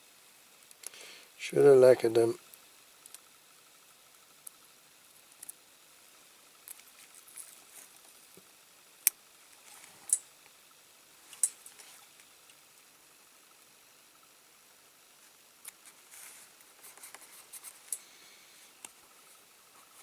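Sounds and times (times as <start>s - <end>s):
small parts clicking and rustling: 5.2s - 5.7s, 11.2s - 12.7s, 15.6s - 18.2s.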